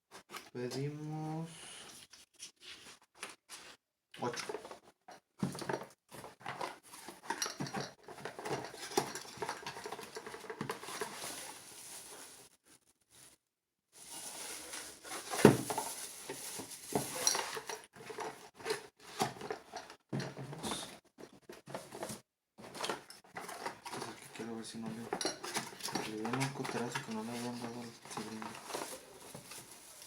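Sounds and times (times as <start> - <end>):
packaging rustling: 5.6 - 12.5, 14.0 - 19.6, 22.7 - 30.0
glass tumblers clinking: 7.2 - 11.5, 16.9 - 18.4, 22.8 - 30.0.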